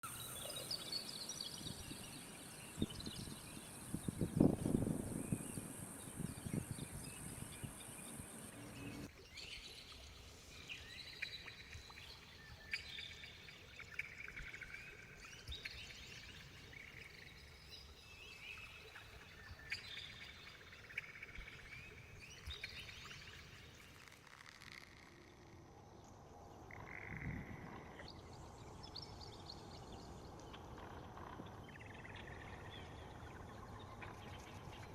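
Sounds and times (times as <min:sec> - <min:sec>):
birds chirping: 0:00.0 - 0:09.1
steady high hiss: 0:00.1 - 0:09.1.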